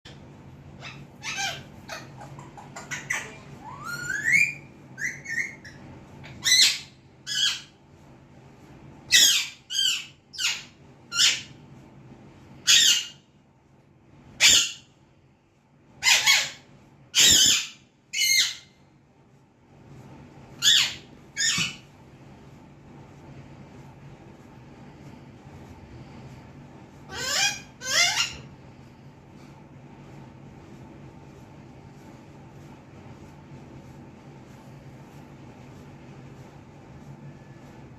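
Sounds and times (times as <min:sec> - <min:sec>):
parakeet squawking: 0:00.8 - 0:07.8, 0:09.1 - 0:11.6, 0:12.6 - 0:13.2, 0:14.4 - 0:14.9, 0:16.0 - 0:18.8, 0:20.6 - 0:21.8, 0:27.1 - 0:28.5.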